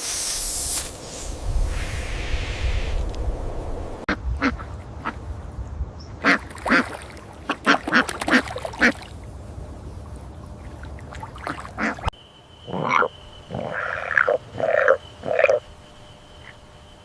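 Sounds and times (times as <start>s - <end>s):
animal calls: 12.7s - 15.7s.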